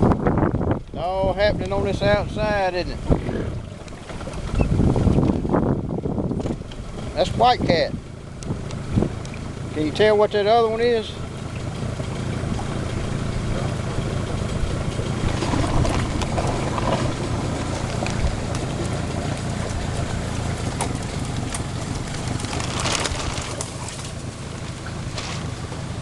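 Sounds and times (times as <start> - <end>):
wind on microphone: 0.0 - 9.5, 12.4 - 24.2
outboard motor running: 0.0 - 26.0.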